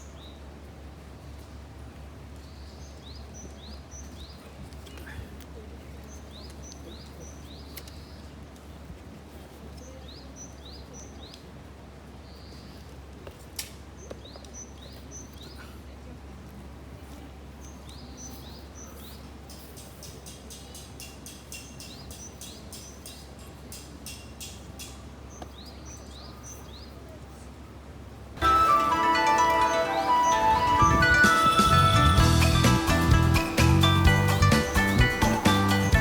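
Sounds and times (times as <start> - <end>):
songbird singing: 0.0 - 0.6, 2.3 - 5.2, 5.8 - 8.4, 9.8 - 11.5, 14.0 - 15.6, 17.5 - 27.0, 28.4 - 36.0
outdoor background noise: 0.0 - 36.0.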